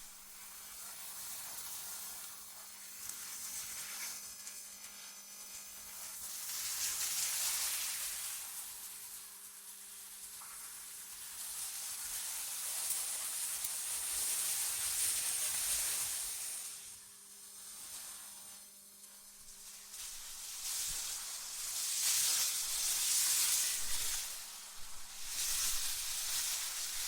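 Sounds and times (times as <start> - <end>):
wind gusts hissing: 22.4 - 27.0.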